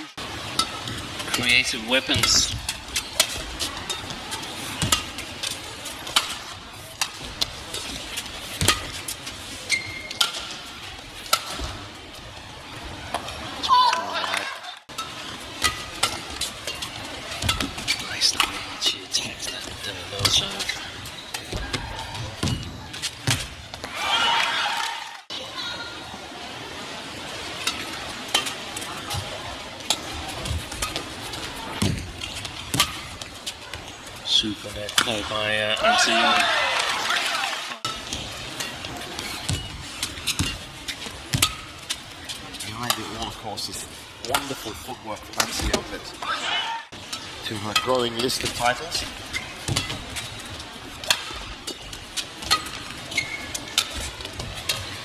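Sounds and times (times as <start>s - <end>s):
shuttlecock racket hits: 2.2s - 10.7s
racket hitting shuttlecock: 2.2s - 11.8s, 15.0s - 18.6s, 32.7s - 33.1s, 37.1s - 42.0s, 49.3s - 50.3s, 51.0s - 54.8s
crowd murmur: 2.2s - 47.4s
shoe squeaks on court: 9.7s - 10.2s, 53.1s - 53.6s.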